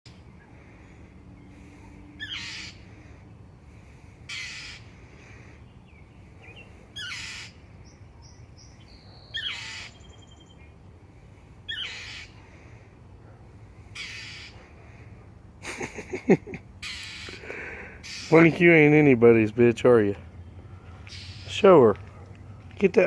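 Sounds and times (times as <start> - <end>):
bird alarm calls: 2.2 - 3.0, 4.3 - 10.6, 11.7 - 12.4, 13.9 - 14.6, 16.8 - 18.5, 20.4 - 21.8.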